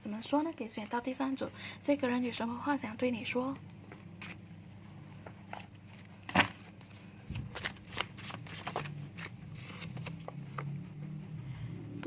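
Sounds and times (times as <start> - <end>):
cards being shuffled: 3.6 - 4.4, 5.2 - 11.0.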